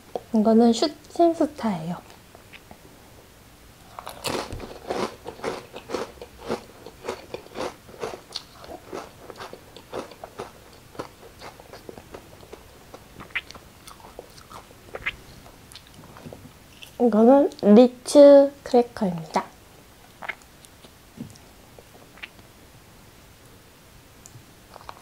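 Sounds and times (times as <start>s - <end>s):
crunchy chewing: 3.9s - 17.0s, 24.7s - 25.0s.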